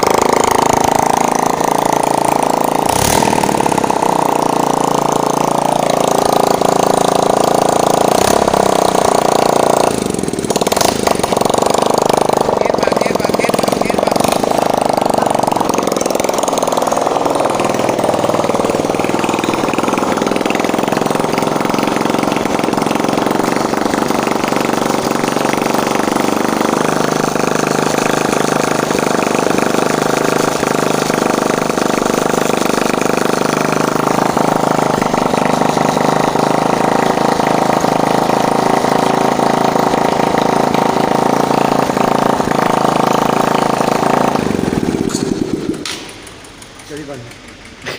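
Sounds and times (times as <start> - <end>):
petrol engine running: 0.0 - 47.9.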